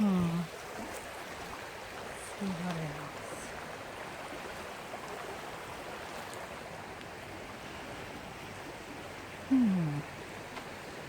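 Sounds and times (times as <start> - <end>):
low vocal hum: 9.5 - 10.1.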